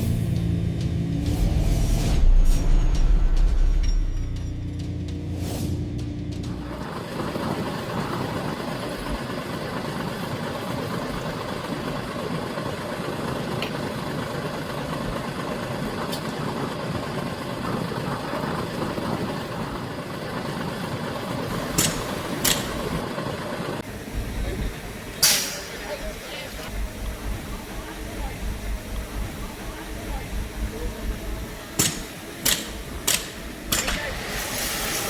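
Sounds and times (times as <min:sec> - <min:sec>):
heavy machinery diesel engine running: 0:00.0 - 0:35.0
sharp clicks: 0:31.8 - 0:34.1.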